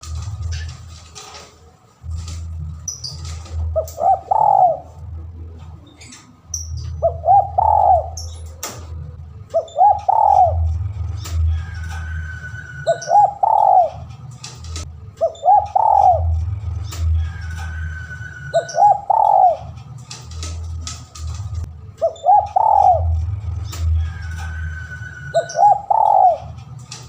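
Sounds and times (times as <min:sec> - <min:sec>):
steady low hum: 0:00.0 - 0:27.0
dove cooing: 0:03.2 - 0:05.1, 0:06.9 - 0:14.2, 0:15.2 - 0:16.5, 0:17.5 - 0:19.9, 0:22.0 - 0:23.4, 0:24.1 - 0:26.6.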